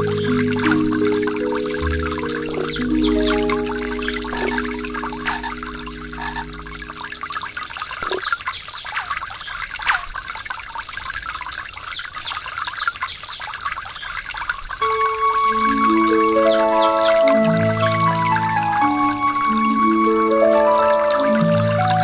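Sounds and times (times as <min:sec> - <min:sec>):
soft music with held notes: 0:00.0 - 0:08.2, 0:14.8 - 0:22.0.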